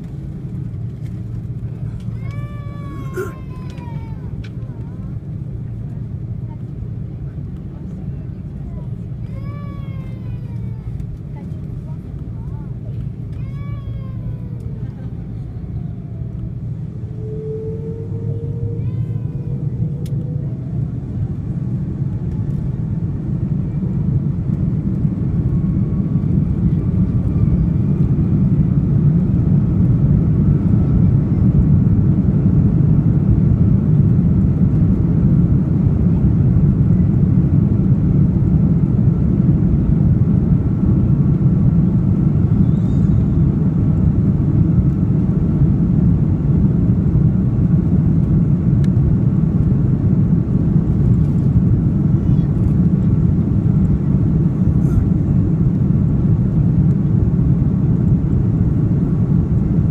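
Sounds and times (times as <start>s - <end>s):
jet engines and runway rumble: 0.0s - 59.9s.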